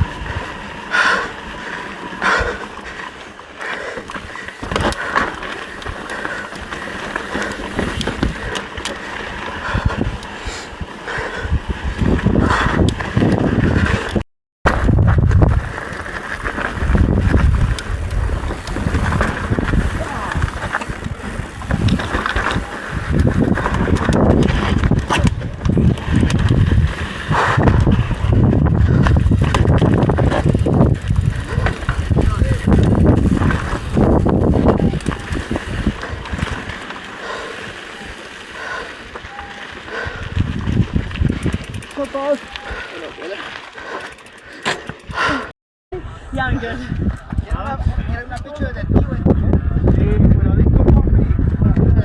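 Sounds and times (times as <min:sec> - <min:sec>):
bike tyre noise: 0:00.0 - 0:52.0
bike knocks and rattles: 0:03.7 - 0:10.2, 0:12.0 - 0:37.4, 0:40.3 - 0:42.4, 0:44.1 - 0:45.1
wind on microphone: 0:09.4 - 0:42.0, 0:45.1 - 0:52.0.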